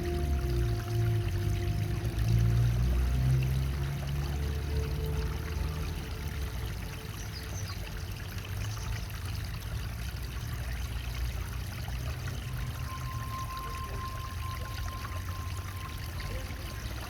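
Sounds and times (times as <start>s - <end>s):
faint high tone: 0.0s - 4.3s, 12.5s - 17.0s
waterfall splashing into pond: 0.0s - 17.0s.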